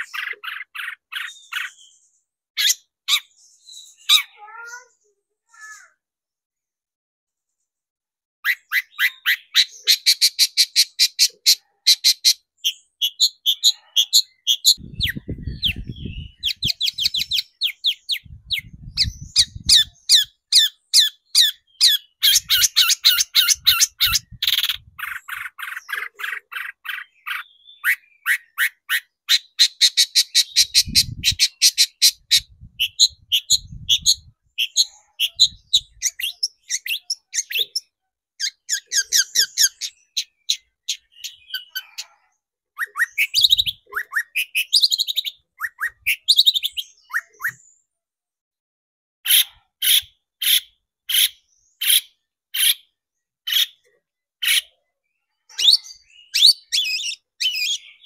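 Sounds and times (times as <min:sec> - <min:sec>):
bird singing harsh scratchy notes: 0:00.0 - 0:05.9, 0:08.4 - 0:47.8.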